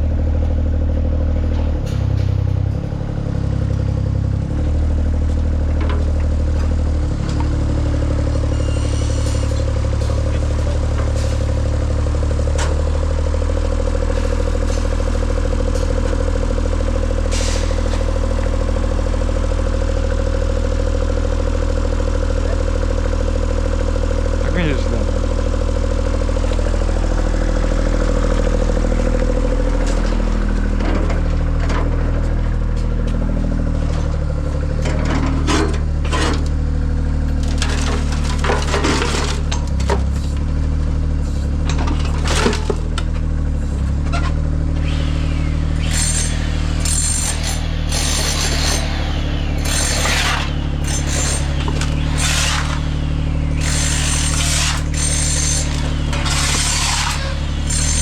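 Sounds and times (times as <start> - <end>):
engine running steadily: 0.0 - 58.0
knocks and scraping: 37.4 - 40.4, 45.8 - 58.0.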